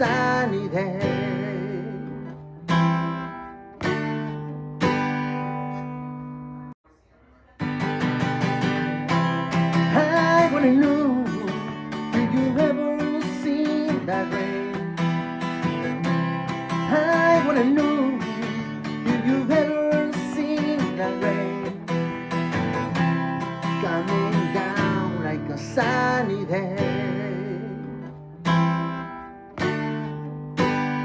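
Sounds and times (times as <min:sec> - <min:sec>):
acoustic guitar strumming: 0:00.0 - 0:06.8, 0:07.6 - 0:31.0.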